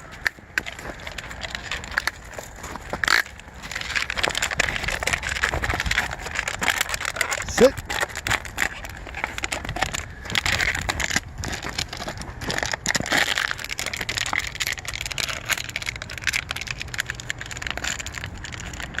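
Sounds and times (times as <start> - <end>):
footsteps crunching through snow: 0.0 - 6.5.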